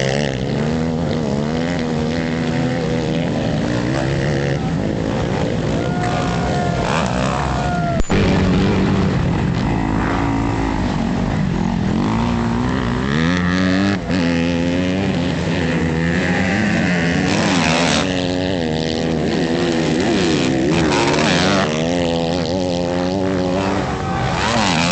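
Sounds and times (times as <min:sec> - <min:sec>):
motocross bikes revving: 0:00.0 - 0:24.9.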